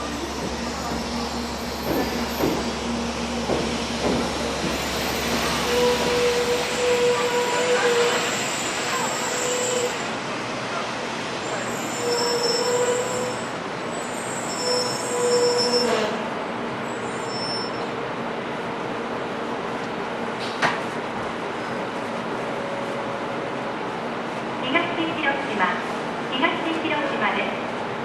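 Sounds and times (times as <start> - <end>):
high squeals of train brakes: 0.0 - 2.9, 4.6 - 10.2, 11.4 - 18.0
train braking to a stop: 0.0 - 18.0.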